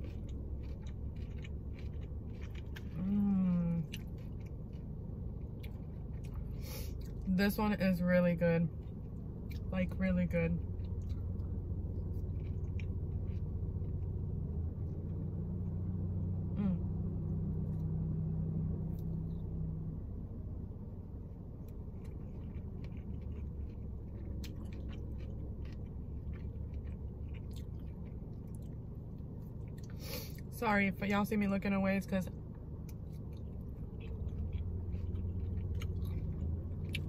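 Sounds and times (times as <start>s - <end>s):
person chewing: 0.0s - 7.3s, 8.7s - 9.7s, 10.6s - 16.0s, 21.6s - 30.5s, 32.8s - 37.0s
low engine rumble: 0.0s - 37.0s
truck passing: 0.0s - 37.0s.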